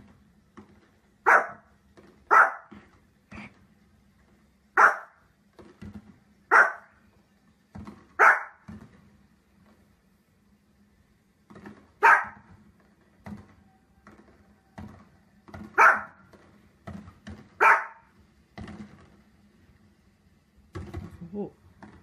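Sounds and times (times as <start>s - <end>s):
small dog barking: 1.2s - 1.7s, 2.3s - 2.8s, 4.8s - 5.2s, 6.5s - 6.9s, 8.2s - 8.6s, 12.0s - 12.5s, 15.8s - 16.2s, 17.6s - 18.1s.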